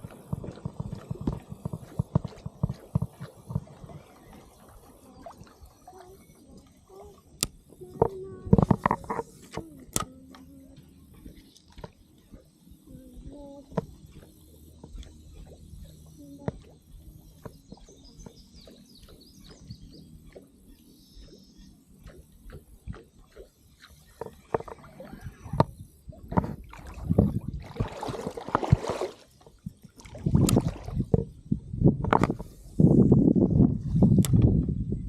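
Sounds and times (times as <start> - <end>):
water sloshing around paddle board: 0.0 - 31.3
small clicks and knocks: 7.4 - 10.9
faint bird chirps: 15.3 - 22.3.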